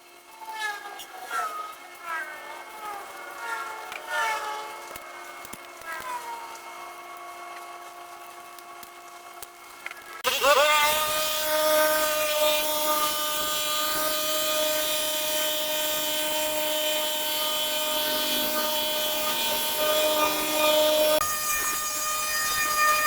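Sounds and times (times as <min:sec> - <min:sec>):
power tool motor spinning: 0:08.5 - 0:23.0.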